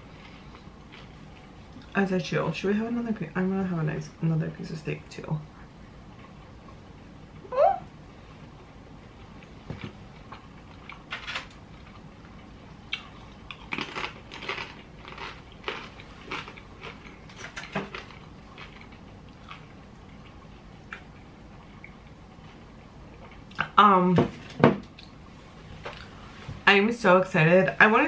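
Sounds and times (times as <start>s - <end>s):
person chewing steak: 11.7s - 23.6s.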